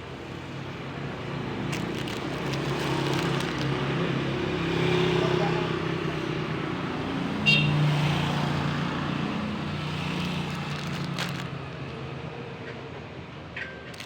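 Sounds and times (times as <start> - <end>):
vehicle engine running: 1.7 - 3.8.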